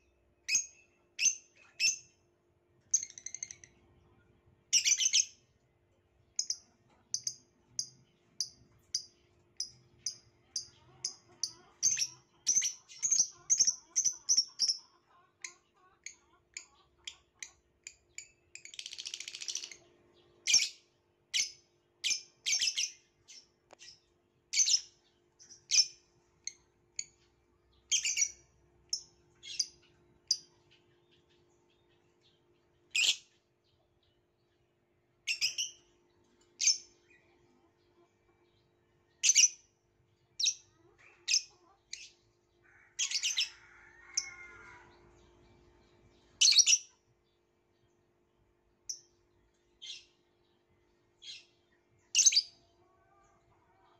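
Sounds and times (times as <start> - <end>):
lovebird chirping: 2.9 - 3.8, 4.7 - 5.4, 6.4 - 14.9, 16.0 - 31.4, 32.9 - 33.4, 35.2 - 35.9, 36.6 - 37.4, 39.2 - 39.7, 43.0 - 47.0, 49.8 - 50.2, 51.2 - 53.2
bird chattering warble: 6.4 - 20.8, 46.4 - 47.0.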